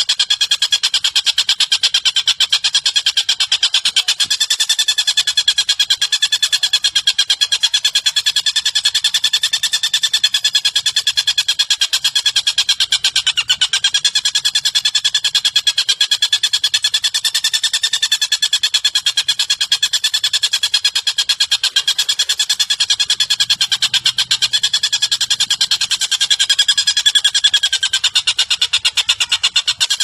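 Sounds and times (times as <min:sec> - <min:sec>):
rapid trill of high chirps: 0:00.0 - 0:30.0.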